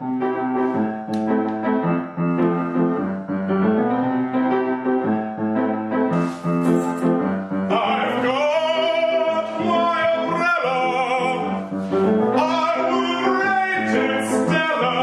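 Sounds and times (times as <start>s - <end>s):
piano playing repeated chords: 0.0s - 15.0s
person singing: 7.7s - 11.6s, 12.3s - 15.0s.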